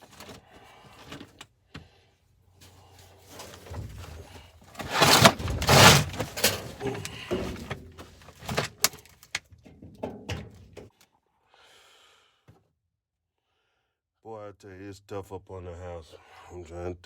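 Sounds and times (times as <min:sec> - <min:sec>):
sheet metal scraping and rattling: 0:03.3 - 0:08.8.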